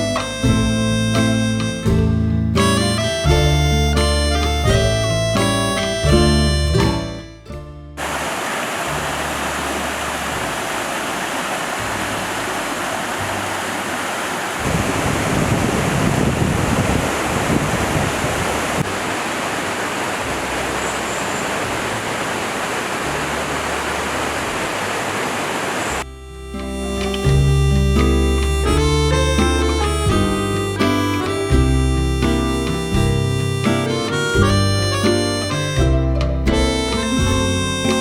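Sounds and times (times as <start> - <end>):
stream rushing: 8.0 - 38.0.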